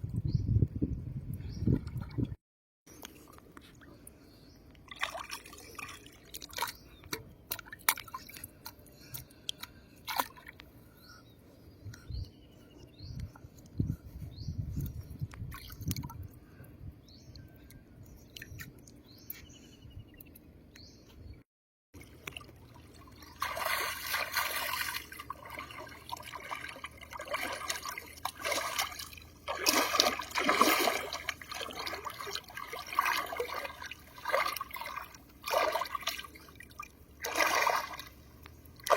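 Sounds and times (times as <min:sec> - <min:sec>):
water dripping and splashing: 0:04.7 - 0:10.6, 0:22.0 - 0:38.9.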